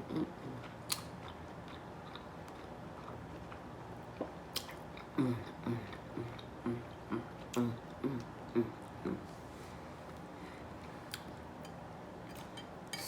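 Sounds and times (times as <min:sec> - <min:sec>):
person humming mm: 0:05.2 - 0:09.4.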